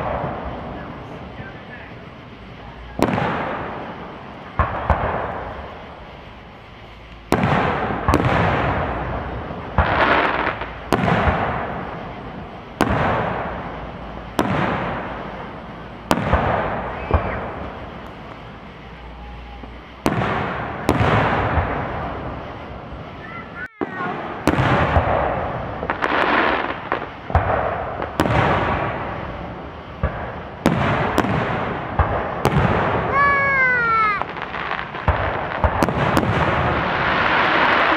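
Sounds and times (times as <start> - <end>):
rumbling echo: 0.0 - 26.0
firework shells booming: 0.0 - 37.9.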